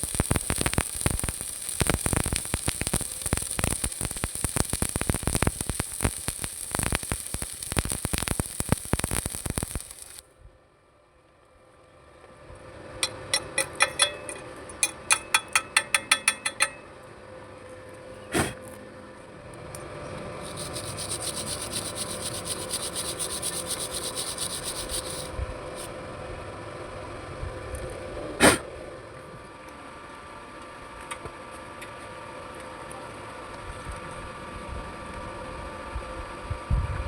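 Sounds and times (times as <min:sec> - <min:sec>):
scratchy rasping hiss: 0:00.0 - 0:10.2, 0:20.4 - 0:25.9
faint steady hum: 0:00.0 - 0:31.0
sharp metallic taps: 0:13.0 - 0:16.8.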